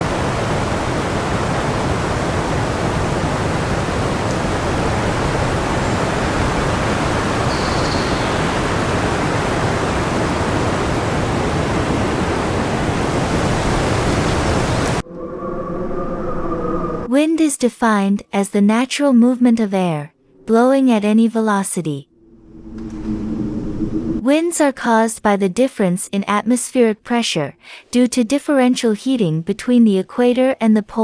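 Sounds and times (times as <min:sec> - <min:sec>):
rushing wind: 0:00.0 - 0:17.1, 0:22.1 - 0:24.2.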